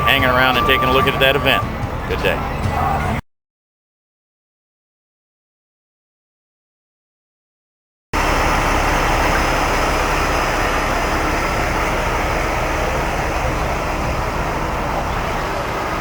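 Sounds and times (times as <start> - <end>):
heavy vehicle engines running: 0.0 - 3.2, 8.2 - 16.0.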